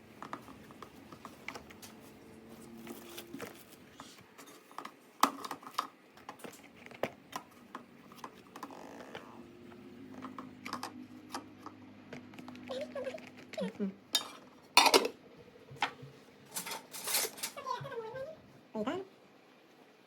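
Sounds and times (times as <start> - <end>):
utensils clicking and tapping: 10.2 - 15.2, 15.8 - 17.6.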